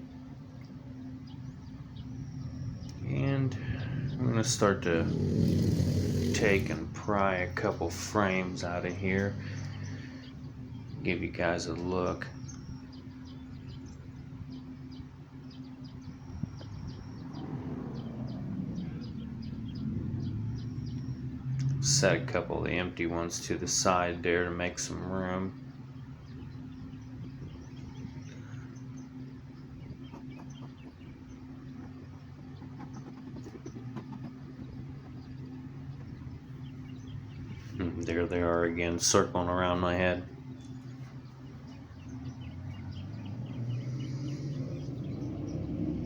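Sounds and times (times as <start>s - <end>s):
small birds chirping: 0.0s - 46.0s
honeybees buzzing: 0.8s - 13.5s, 27.6s - 45.3s.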